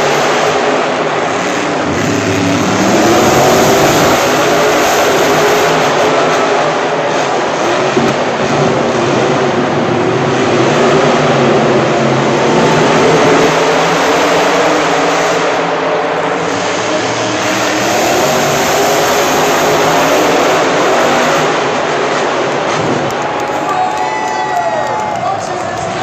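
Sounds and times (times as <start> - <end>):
truck engine revving: 0.0 - 23.7.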